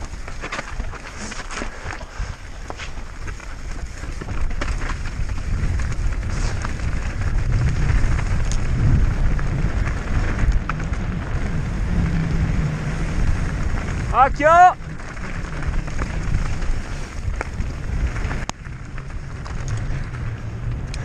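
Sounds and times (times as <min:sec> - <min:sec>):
bike rattles and knocks: 0:00.0 - 0:21.0
bike tyre noise: 0:00.0 - 0:21.0
wind rumbling on microphone: 0:00.0 - 0:21.0.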